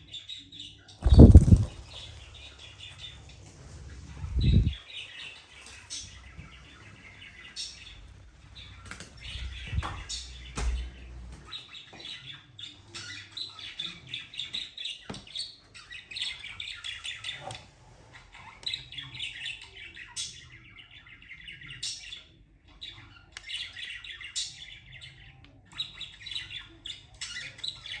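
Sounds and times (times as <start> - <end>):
low rumble: 4.2 - 4.8.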